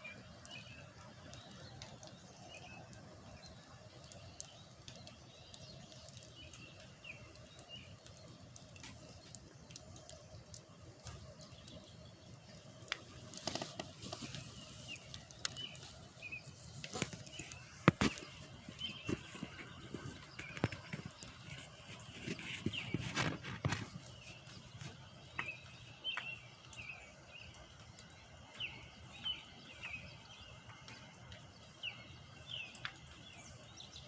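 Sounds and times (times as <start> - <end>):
sharp clicks and knocks: 16.8 - 24.1.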